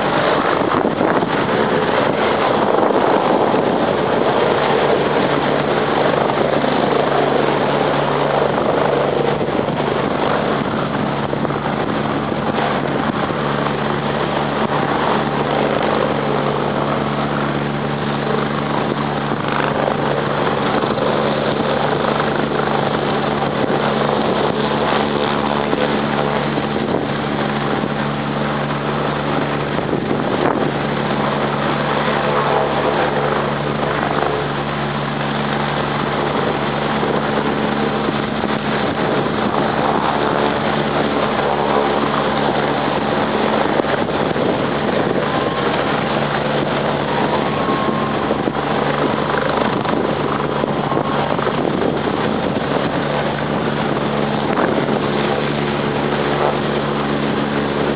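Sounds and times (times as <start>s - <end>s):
helicopter engine and rotor drone: 0.0s - 57.9s.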